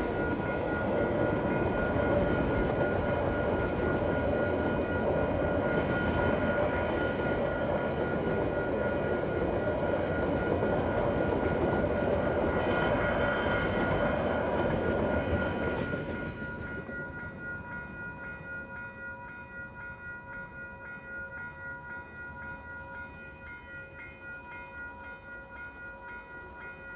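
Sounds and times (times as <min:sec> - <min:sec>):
freight train rolling: 0:00.0 - 0:19.8
crossing warning bells ringing: 0:00.0 - 0:26.9.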